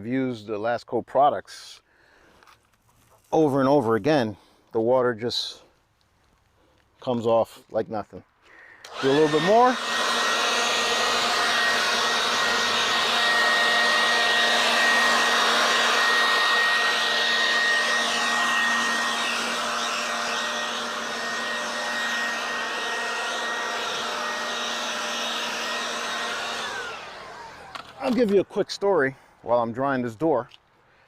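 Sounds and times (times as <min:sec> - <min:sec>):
leaf blower running: 0:08.5 - 0:28.4.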